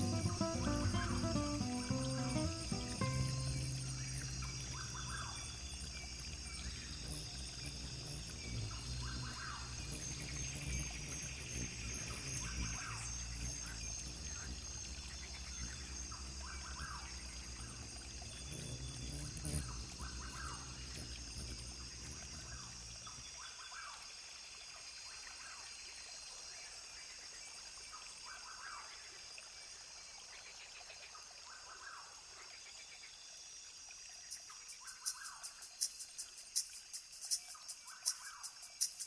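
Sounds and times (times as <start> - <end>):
running water rushing: 0.0 - 25.6
high insect drone: 0.0 - 39.0.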